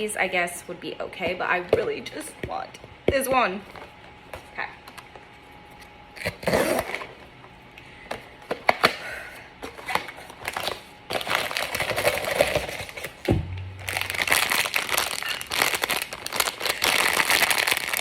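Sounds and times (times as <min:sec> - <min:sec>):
plastic packaging crinkling: 0:09.7 - 0:18.0.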